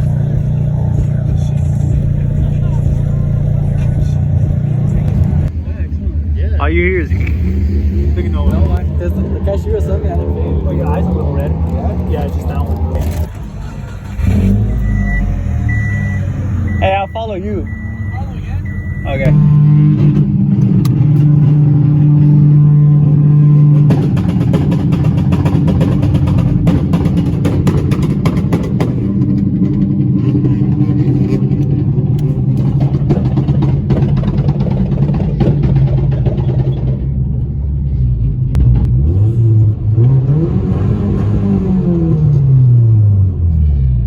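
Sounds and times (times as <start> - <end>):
car engine running: 0.0 - 44.0.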